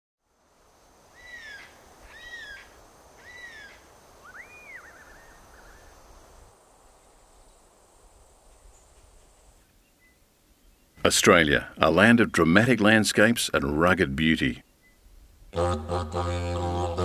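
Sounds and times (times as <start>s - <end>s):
faint background hiss: 0.2s - 17.0s
birds calling: 1.2s - 6.0s.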